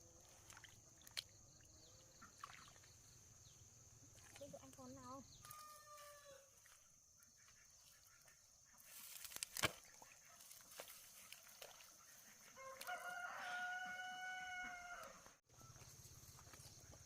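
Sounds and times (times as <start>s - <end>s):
distant rooster crowing: 5.4s - 6.5s, 12.6s - 15.7s.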